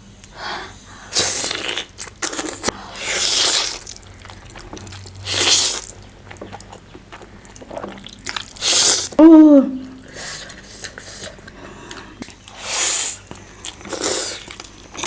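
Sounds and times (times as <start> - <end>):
person chewing: 0.2 - 9.2, 9.8 - 15.0.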